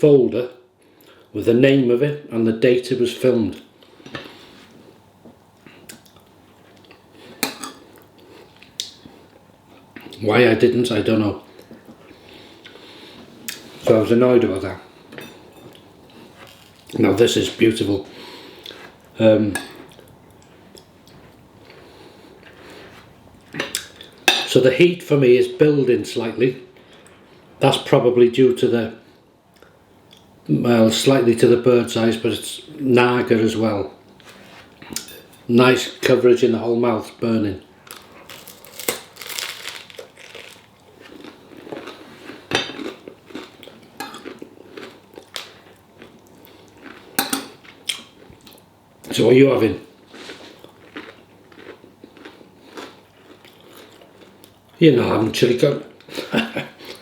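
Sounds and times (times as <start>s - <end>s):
cutlery scraping a plate: 7.4s - 7.8s, 47.2s - 47.6s
person chewing: 37.8s - 48.7s, 50.0s - 54.8s, 56.0s - 57.0s.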